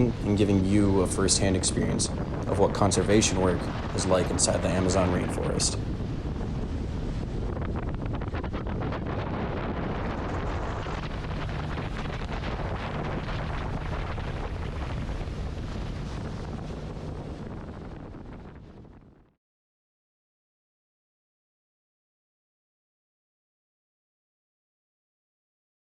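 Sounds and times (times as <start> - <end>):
steady low rumble: 0.0 - 19.3
wind buffeting microphone: 0.0 - 19.3.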